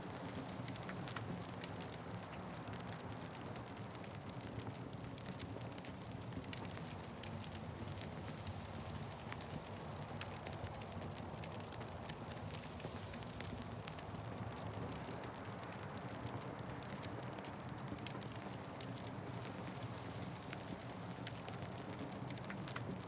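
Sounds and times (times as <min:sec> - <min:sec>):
wood fire crackling and popping: 0:00.1 - 0:23.0.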